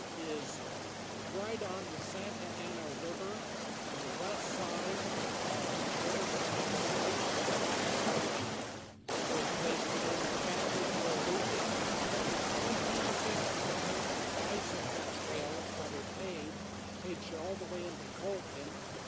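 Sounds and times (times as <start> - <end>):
steady outdoor rushing noise: 0.0 - 19.0.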